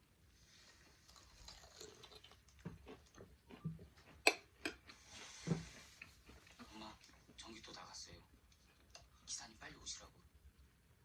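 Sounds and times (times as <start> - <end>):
crunching and chewing: 0.6 - 5.2.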